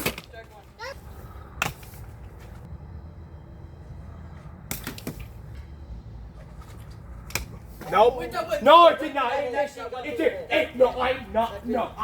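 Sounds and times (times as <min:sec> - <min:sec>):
low steady rumble: 0:00.9 - 0:08.6.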